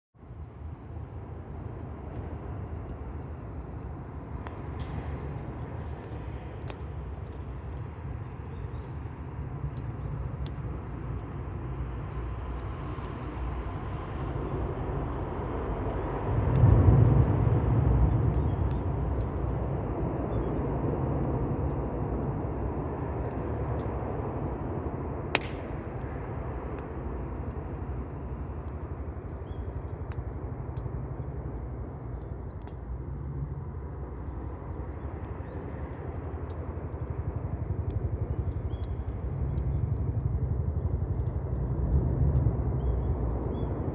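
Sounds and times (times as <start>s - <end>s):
burning wood crackling and popping: 0.3s - 43.9s
low rumble: 9.4s - 43.9s.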